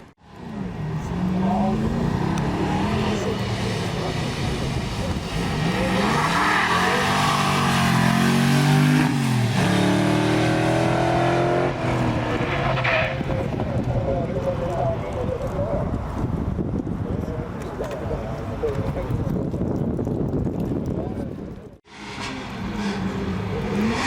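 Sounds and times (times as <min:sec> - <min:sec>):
tyre and road noise: 0:00.0 - 0:24.0
rally car engine revving: 0:00.3 - 0:14.2, 0:21.9 - 0:24.0.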